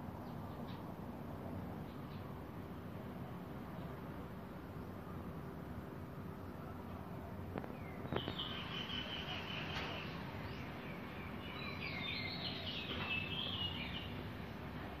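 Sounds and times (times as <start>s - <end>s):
steady low background hum: 0.0s - 15.0s
bird singing chirps and trills: 7.5s - 15.0s.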